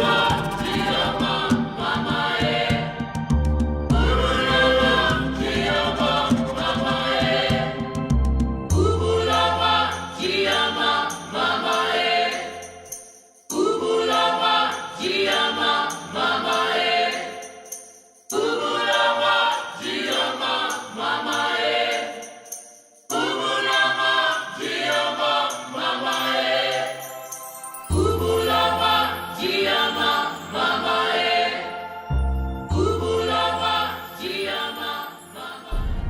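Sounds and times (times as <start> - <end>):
choir singing: 0.0 - 36.0.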